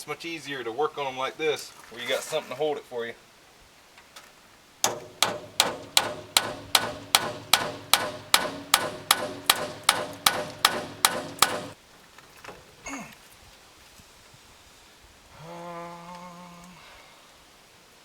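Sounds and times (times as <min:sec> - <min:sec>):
hammer ringing on metal: 0:04.8 - 0:11.8.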